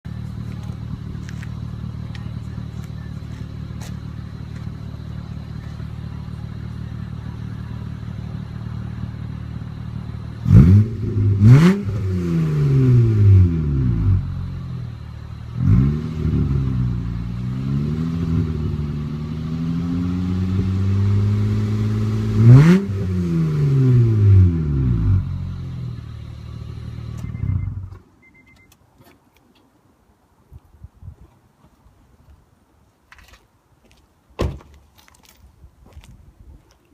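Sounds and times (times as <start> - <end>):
car engine idling and revving: 0.1 - 28.6.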